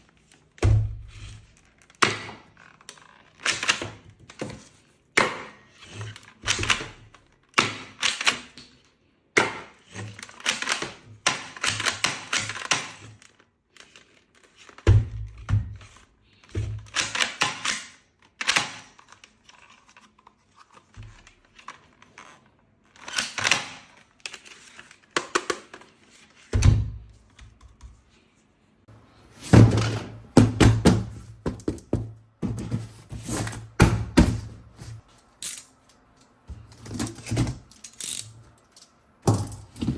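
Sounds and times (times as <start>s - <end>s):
plastic toys clicking and knocking: 1.4s - 26.5s, 36.6s - 39.9s
heavy thuds: 29.3s - 35.0s.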